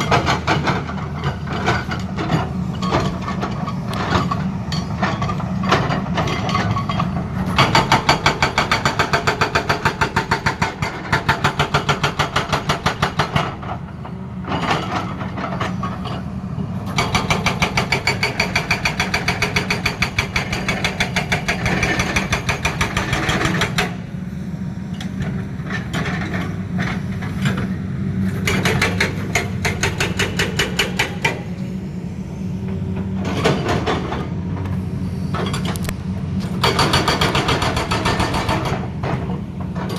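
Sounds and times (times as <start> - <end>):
diesel engine running: 23.1 - 39.9
hydraulic breaker hammering: 36.4 - 39.9.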